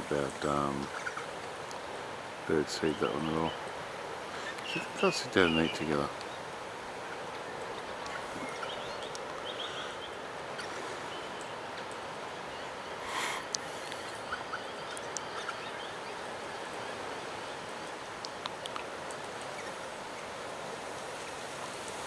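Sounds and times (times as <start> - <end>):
small ticks: 18.2 - 19.6.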